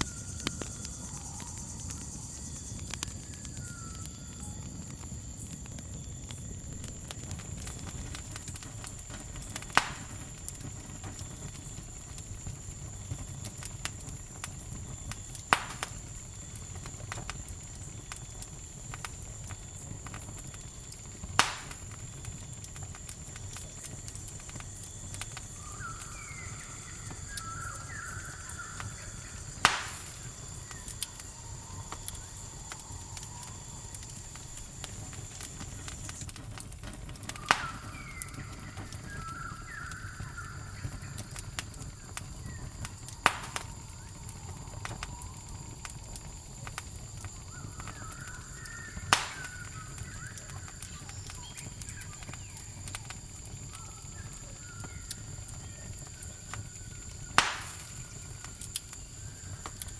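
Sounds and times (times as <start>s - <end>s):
campfire crackling and popping: 0.0s - 59.9s
cricket trill: 0.0s - 59.9s
bird calls: 25.5s - 31.1s, 37.4s - 41.3s, 47.4s - 52.6s.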